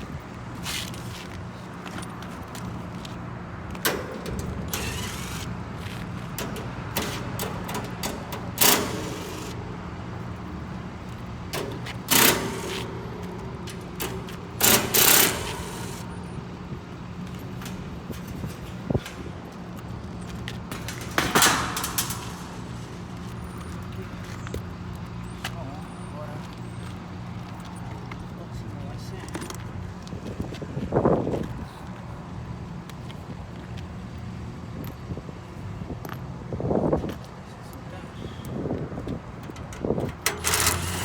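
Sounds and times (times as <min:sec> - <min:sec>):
low machinery hum: 0:01.4 - 0:32.8, 0:38.3 - 0:41.0
loud noisy bursts: 0:12.0 - 0:16.2.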